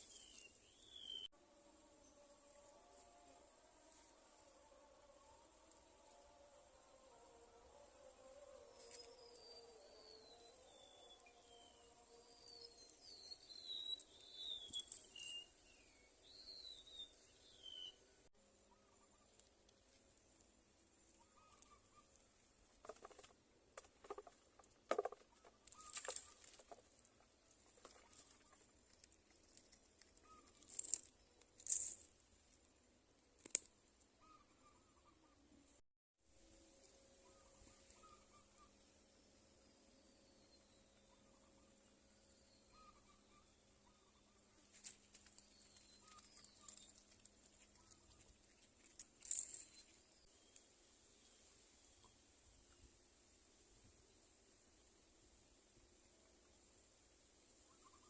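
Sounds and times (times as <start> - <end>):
faint bird chirps: 0.0 - 1.3, 8.6 - 19.5, 21.1 - 22.2, 29.5 - 32.0, 34.2 - 35.7, 37.2 - 52.9, 57.6 - 58.0
close rustles and clicks: 44.7 - 50.0.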